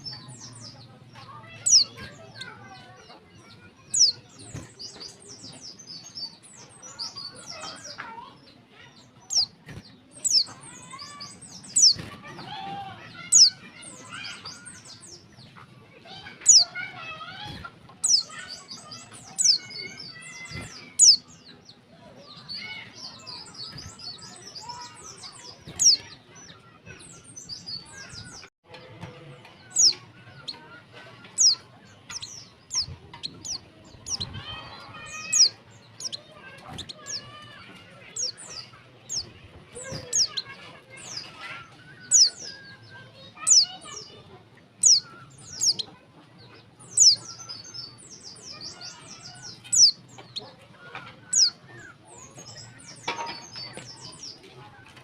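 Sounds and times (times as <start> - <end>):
bird sharp high chirps: 0.0 - 28.5, 29.6 - 30.6, 31.2 - 44.2, 44.8 - 54.4.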